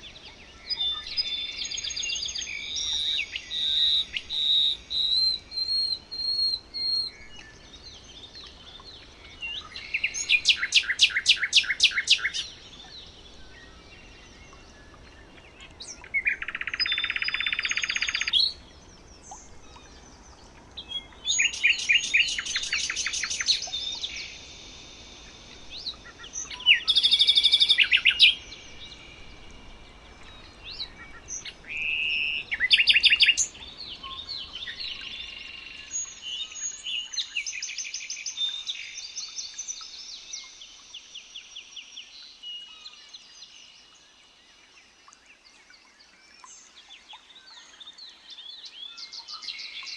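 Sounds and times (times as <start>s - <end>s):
songbirds singing: 0.0s - 49.9s.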